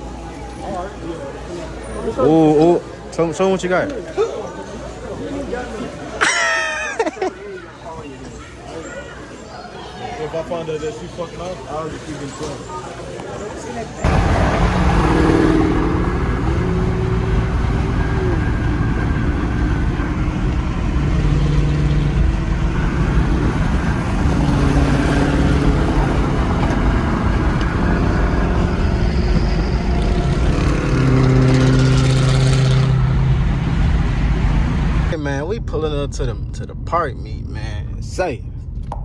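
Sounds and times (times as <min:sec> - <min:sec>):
car engine rumble: 0:14.0 - 0:39.0.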